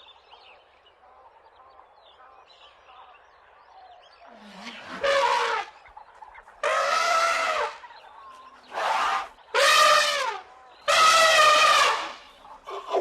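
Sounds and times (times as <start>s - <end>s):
animal calling: 4.3s - 13.0s.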